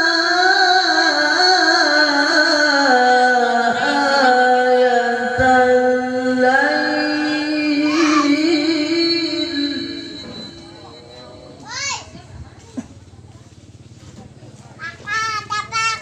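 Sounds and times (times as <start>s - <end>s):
person chanting melodic recitation: 0.0s - 12.2s.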